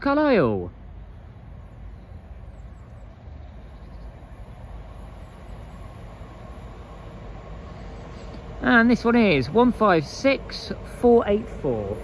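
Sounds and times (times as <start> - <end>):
train low rumble: 0.0 - 12.0.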